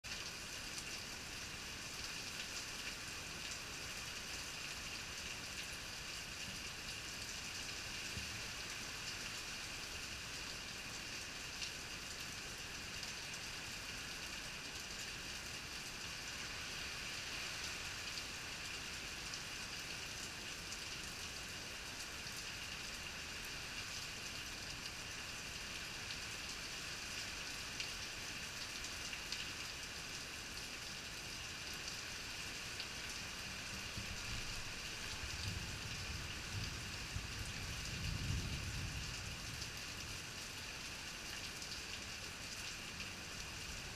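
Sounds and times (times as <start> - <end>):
heavy rain pattering: 31.4 - 43.9.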